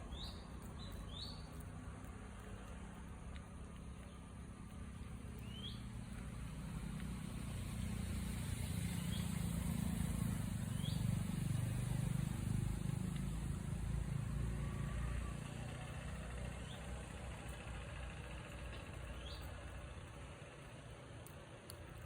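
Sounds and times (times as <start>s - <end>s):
bird chirps: 0.0s - 1.5s, 5.4s - 5.9s, 19.1s - 19.6s
vehicle engine running: 0.0s - 22.0s.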